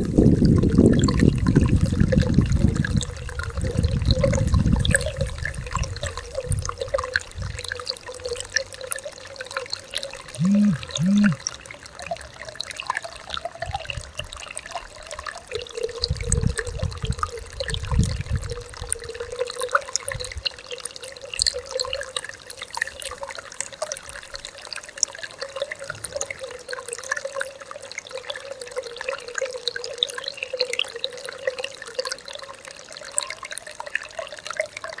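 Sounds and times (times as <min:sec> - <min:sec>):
stream gurgling: 0:00.0 - 0:35.0
short low tones: 0:10.4 - 0:11.4.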